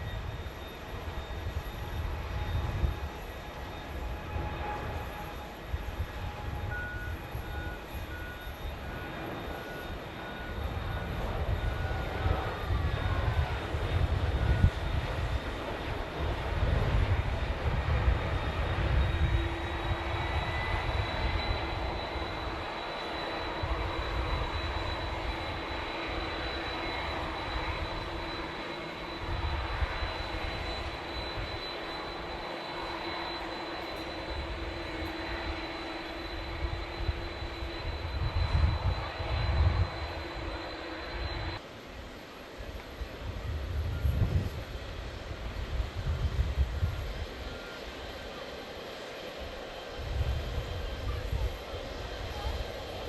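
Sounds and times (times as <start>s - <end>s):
jet engines whining and rumbling: 0.0s - 53.0s.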